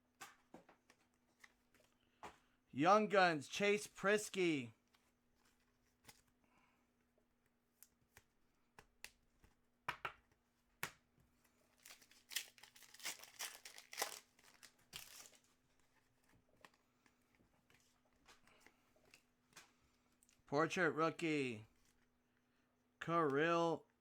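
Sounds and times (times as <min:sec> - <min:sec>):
foil pack tearing and crinkling: 0:11.8 - 0:15.5.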